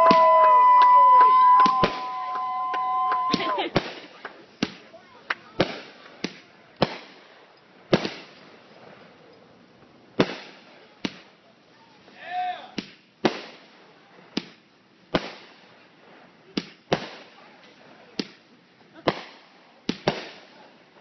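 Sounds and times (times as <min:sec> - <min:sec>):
firework bangs echoing: 0:00.0 - 0:04.9, 0:05.5 - 0:08.5, 0:10.2 - 0:11.3, 0:12.8 - 0:13.7, 0:14.4 - 0:15.6, 0:19.0 - 0:20.5.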